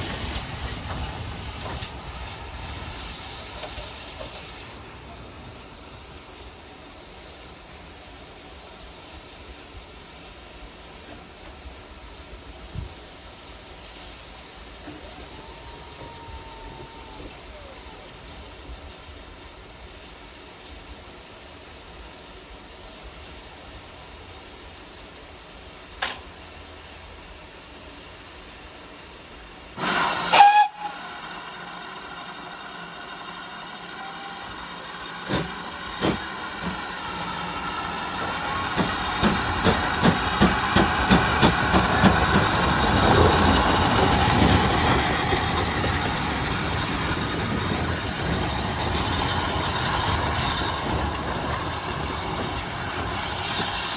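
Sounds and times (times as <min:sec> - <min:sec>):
rush of steam and train noise: 0:00.0 - 0:53.9
steam locomotive whistle: 0:29.8 - 0:36.8.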